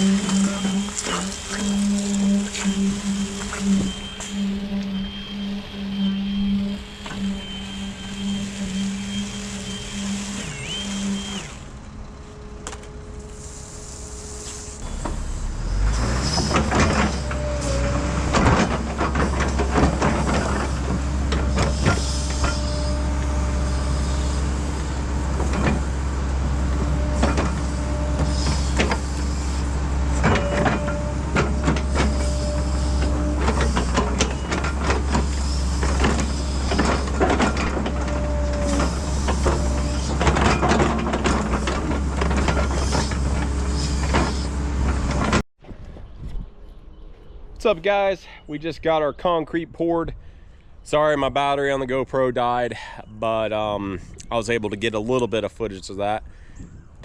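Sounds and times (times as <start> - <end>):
heavy diesel engine drone: 0.0 - 45.4
humming whine: 0.0 - 47.7
knocks and clanks: 14.8 - 22.8, 25.4 - 25.9, 26.7 - 29.1, 30.2 - 46.0.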